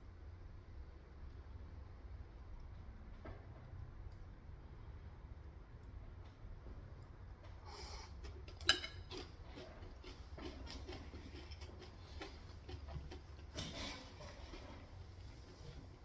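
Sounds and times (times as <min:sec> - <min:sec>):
chewing clicks and taps: 0:08.2 - 0:13.7.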